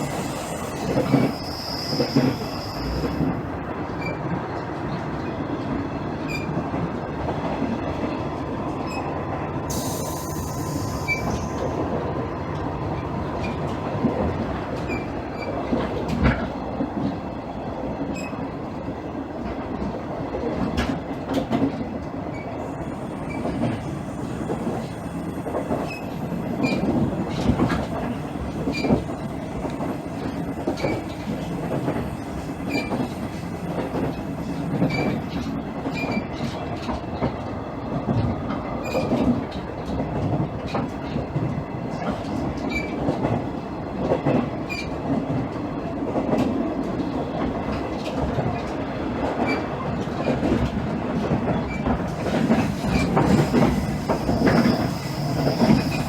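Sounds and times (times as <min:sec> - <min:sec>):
train engine and wheels rumbling: 0:00.0 - 0:56.0
wheels clicking over rail joints: 0:46.1 - 0:56.0.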